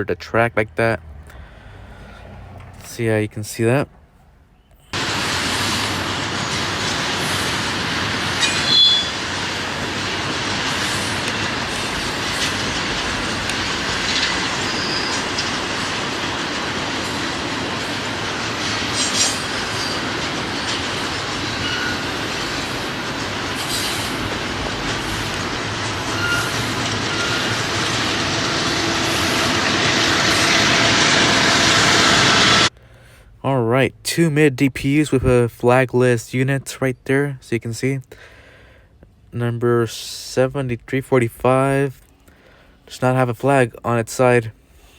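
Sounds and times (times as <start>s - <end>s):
train wheels rumbling on rails: 0.0s - 4.1s, 4.8s - 32.8s
high wheel squeals: 4.6s - 32.7s.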